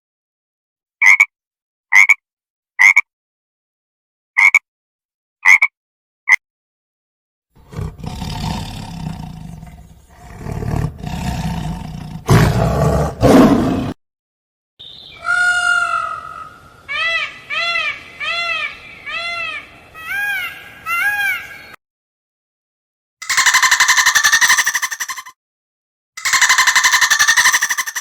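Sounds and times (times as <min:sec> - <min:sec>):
big cat growling and roaring: 0:07.6 - 0:14.0
animal high arching calls: 0:15.1 - 0:21.6, 0:23.2 - 0:25.3, 0:26.2 - 0:28.0.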